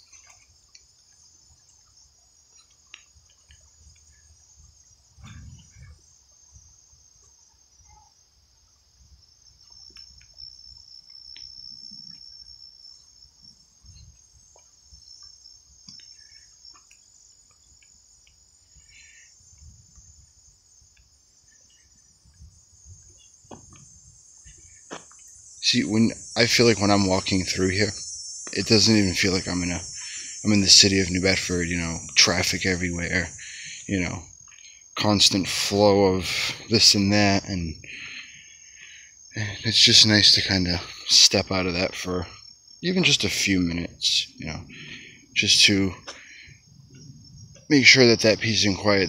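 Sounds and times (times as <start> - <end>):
faint chirps: 0.0 - 49.0
insects chorus: 0.0 - 49.0
footsteps on trail: 13.9 - 18.7, 19.4 - 25.4.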